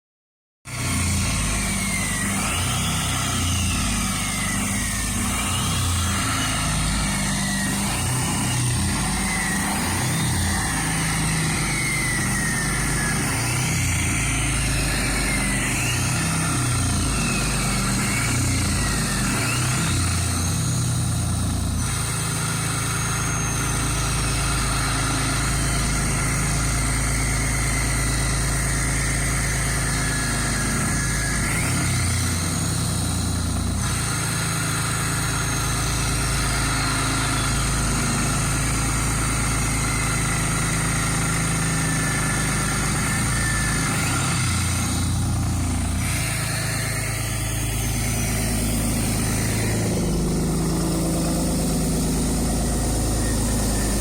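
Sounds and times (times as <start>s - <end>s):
diesel engine idling: 0.7s - 54.0s.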